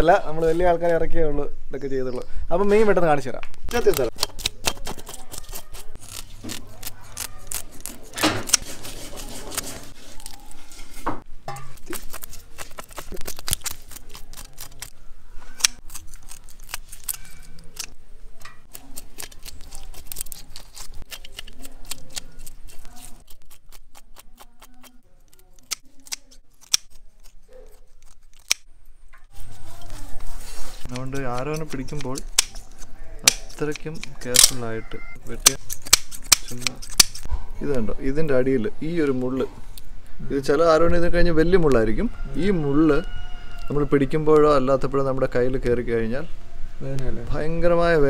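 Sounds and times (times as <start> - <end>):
scissors snipping and scraping fish: 3.7 - 10.7, 11.6 - 28.7, 30.8 - 34.6, 35.3 - 37.3.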